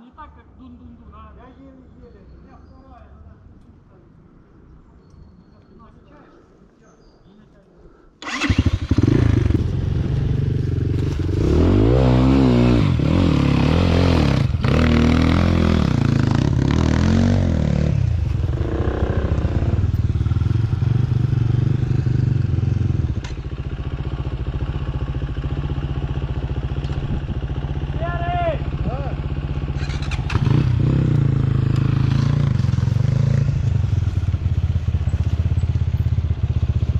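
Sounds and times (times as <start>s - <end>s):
motorcycle engine revving: 8.2s - 36.9s.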